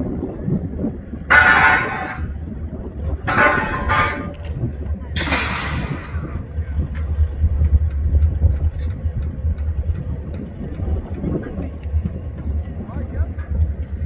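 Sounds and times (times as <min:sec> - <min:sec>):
diesel locomotive rumbling: 0:01.0 - 0:14.0
loud hiss burst: 0:05.2 - 0:06.4.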